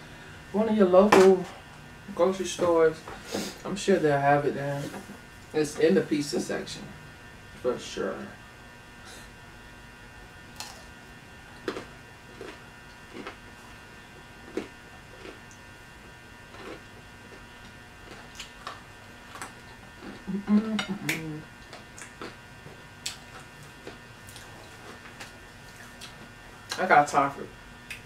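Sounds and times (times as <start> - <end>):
faint electrical hum: 0.0 - 28.0
chewing clicks and lip smacks: 18.1 - 20.3, 21.1 - 22.4, 23.0 - 24.5.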